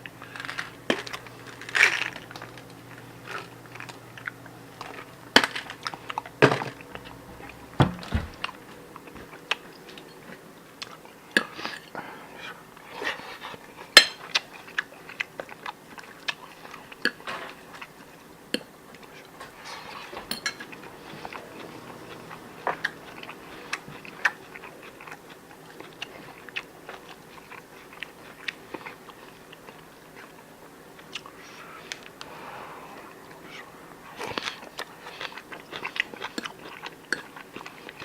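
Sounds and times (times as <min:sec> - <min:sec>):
person chewing and biting: 0:34.2 - 0:38.0.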